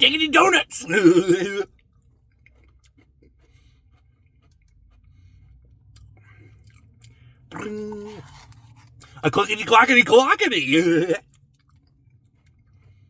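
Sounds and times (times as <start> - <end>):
chewing and wet mouth clicks: 2.3 - 9.2, 11.3 - 13.0.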